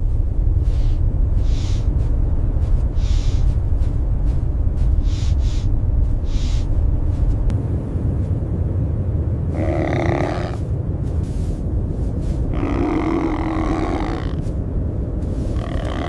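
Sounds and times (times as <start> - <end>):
blizzard wind rumble: 0.0 - 16.0
short hissing puffs: 0.6 - 2.0, 2.9 - 3.6, 5.0 - 7.3.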